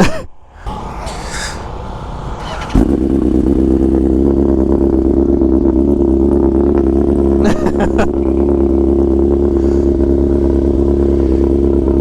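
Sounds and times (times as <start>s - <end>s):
motorcycle engine starting and idling: 0.7s - 12.0s.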